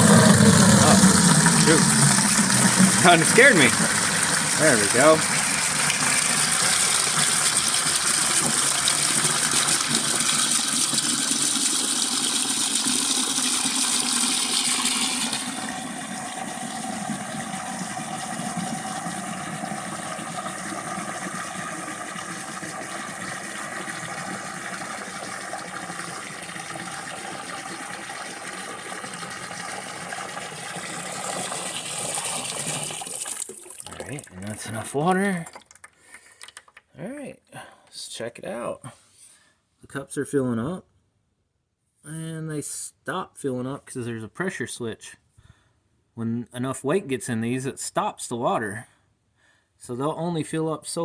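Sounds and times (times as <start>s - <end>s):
water filling plastic bucket: 0.0s - 36.9s.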